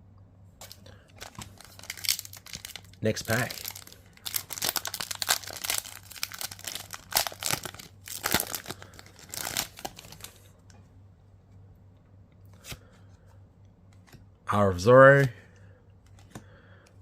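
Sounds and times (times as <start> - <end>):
foil wrapper tearing and crinkling: 0.6 - 10.3.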